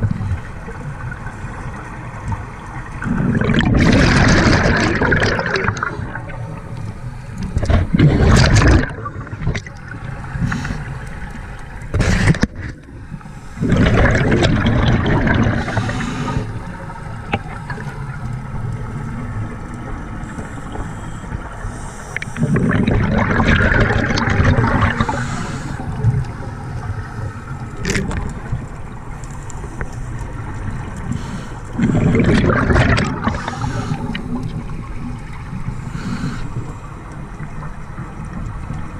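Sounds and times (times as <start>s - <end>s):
gurgling exhaled bubbles: 2.3s - 6.7s, 7.5s - 11.2s, 13.6s - 21.6s, 22.2s - 29.1s, 30.0s - 38.9s
underwater hiss: 9.5s - 14.3s, 15.4s - 19.1s, 20.1s - 23.0s, 24.6s - 27.9s, 29.2s - 32.3s, 33.1s - 37.0s.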